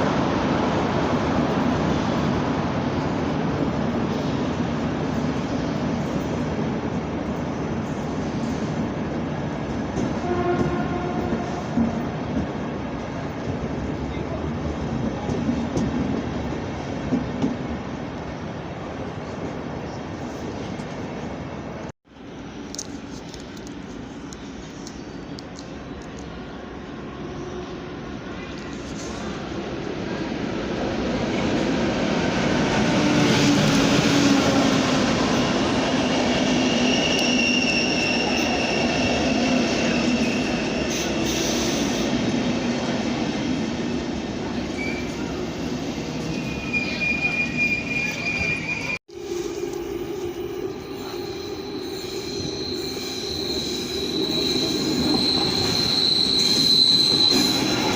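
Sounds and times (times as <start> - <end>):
train rolling rumble: 0.0 - 57.9
light track clicks: 22.6 - 26.6
high wheel squeal: 35.8 - 42.1, 46.2 - 49.6, 50.4 - 57.9.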